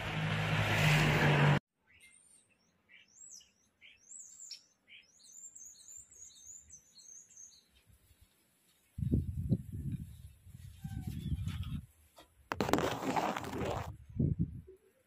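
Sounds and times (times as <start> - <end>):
small birds chirping: 1.8 - 9.2.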